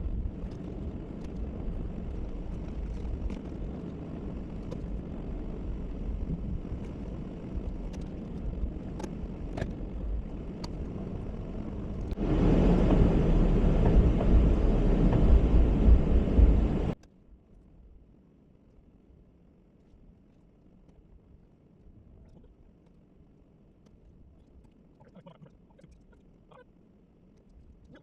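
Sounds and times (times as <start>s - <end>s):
loud rough noise: 0.0s - 17.0s
plow truck engine rumble: 0.0s - 17.0s.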